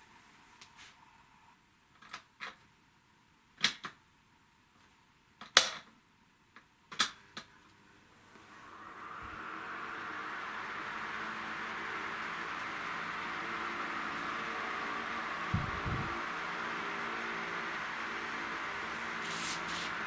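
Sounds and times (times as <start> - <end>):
fan air rushing: 8.3 - 20.0
electric fan clicks and knocks: 13.2 - 20.0.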